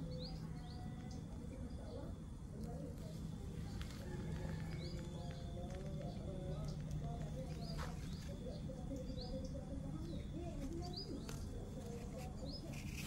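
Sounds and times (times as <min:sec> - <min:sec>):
bird chirping: 0:04.4 - 0:13.0.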